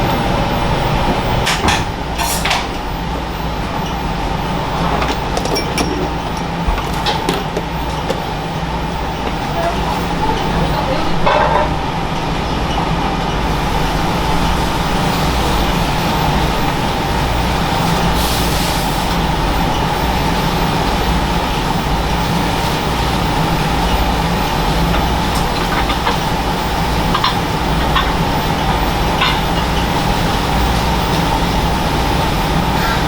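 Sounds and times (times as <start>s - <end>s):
mechanical drone with low hum: 0.0s - 33.0s.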